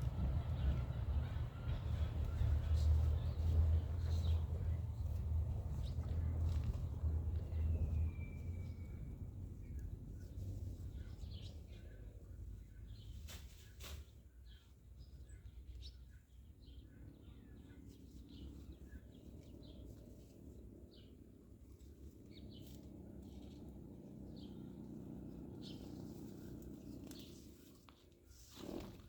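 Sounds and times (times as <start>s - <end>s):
steady low rumble: 0.0s - 13.1s
small birds chirping: 0.0s - 28.0s.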